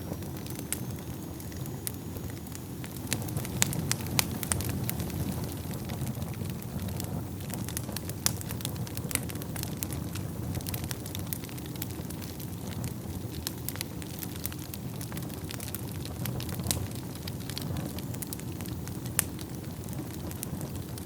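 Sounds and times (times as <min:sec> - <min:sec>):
low rumble of flames: 0:00.0 - 0:21.0
wood fire crackles and pops: 0:00.0 - 0:21.0.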